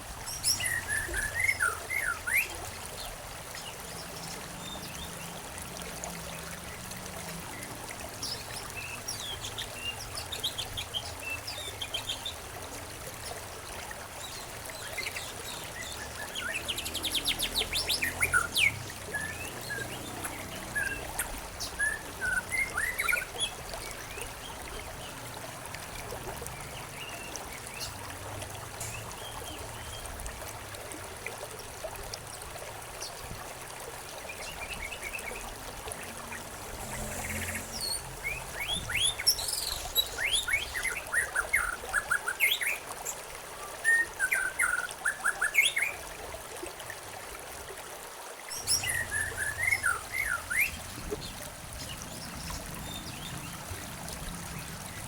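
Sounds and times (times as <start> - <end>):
stream water trickling: 0.0 - 55.0
songbirds chirping: 34.3 - 46.0, 48.5 - 55.0.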